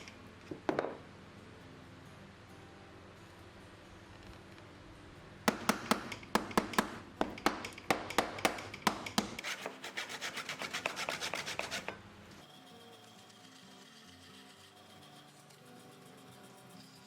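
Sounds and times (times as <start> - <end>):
hand tool strokes on wood: 9.2 - 17.0.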